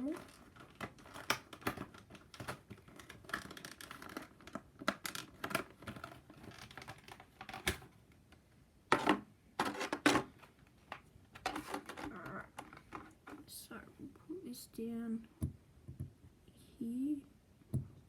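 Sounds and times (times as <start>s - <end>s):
packaging clicks and taps: 0.0s - 7.9s.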